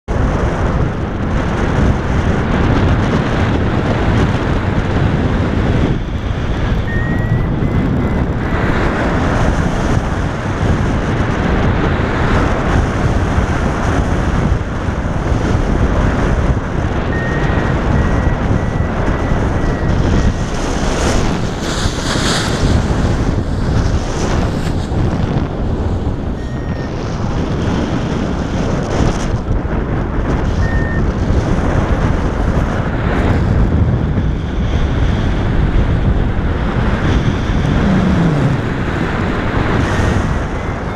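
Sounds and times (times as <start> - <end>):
wind rushing over microphone: 0.0 - 40.9
thin high tone: 6.9 - 7.5.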